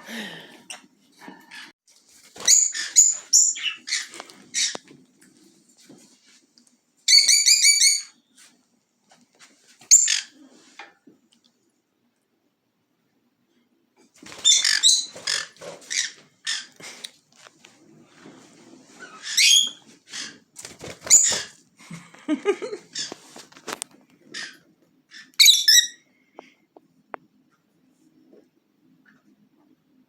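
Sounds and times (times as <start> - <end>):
parrots chirping and squawking: 2.4 - 4.9, 7.1 - 8.2, 9.9 - 10.4, 14.2 - 16.8, 19.0 - 21.6, 22.9 - 23.2, 24.2 - 26.1.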